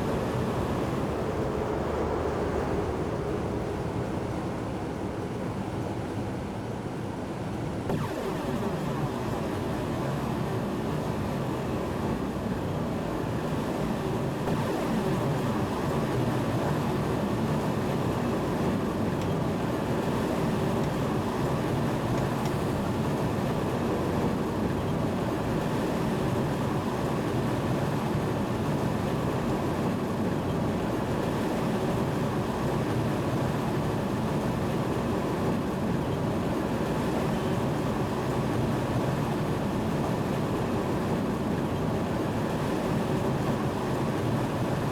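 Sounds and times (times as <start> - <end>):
train low rumble: 0.0 - 6.6.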